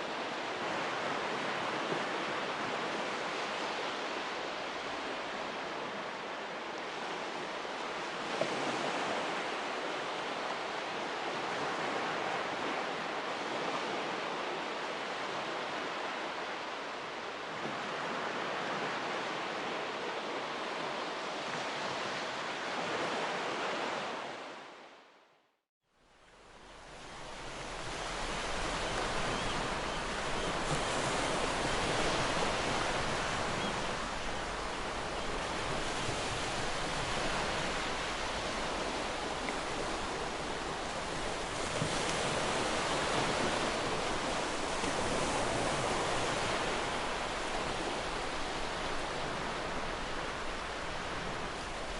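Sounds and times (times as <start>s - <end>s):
ocean surf breaking: 26.8s - 51.9s.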